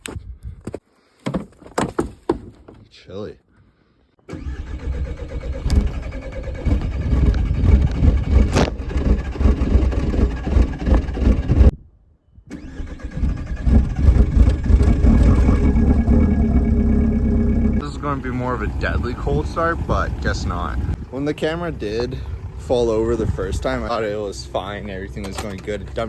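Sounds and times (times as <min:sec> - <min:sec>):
diesel engine running rough and knocking: 0:05.6 - 0:11.7, 0:13.6 - 0:26.0.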